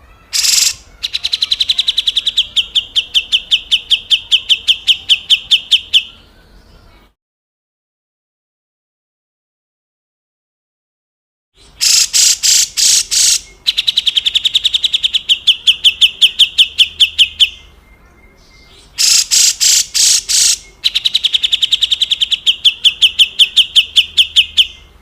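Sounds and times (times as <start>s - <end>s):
bulbul harsh rasping call: 0.3s - 6.1s, 11.6s - 17.4s, 18.8s - 24.9s.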